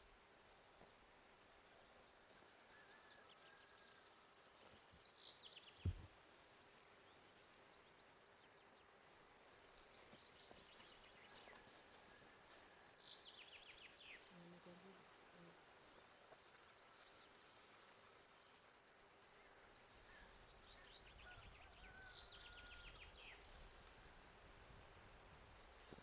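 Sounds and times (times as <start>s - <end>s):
faint birdsong chirps and trills: 0.0s - 26.0s
dull thump: 5.8s - 6.1s.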